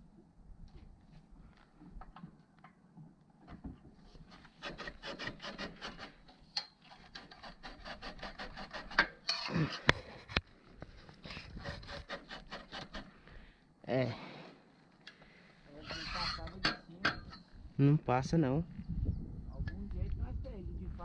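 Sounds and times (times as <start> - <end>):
rubbing and scraping strokes: 4.0 - 13.4, 15.7 - 17.4.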